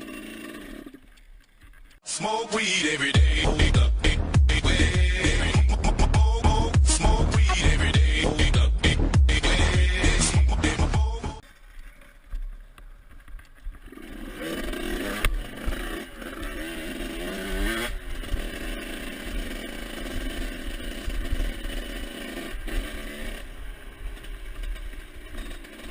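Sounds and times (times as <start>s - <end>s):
motocross bike engine revving: 3.2s - 11.4s, 13.8s - 25.9s.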